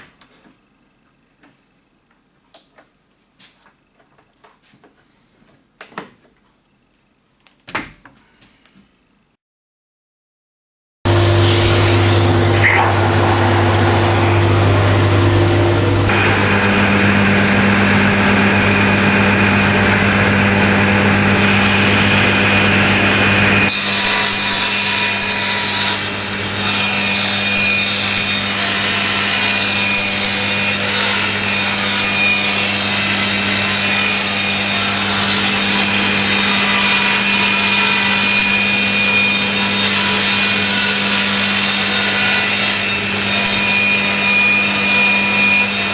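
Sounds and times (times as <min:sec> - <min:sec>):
saw blade cutting wood: 0:11.1 - 0:45.9
table saw motor hum: 0:11.1 - 0:45.9.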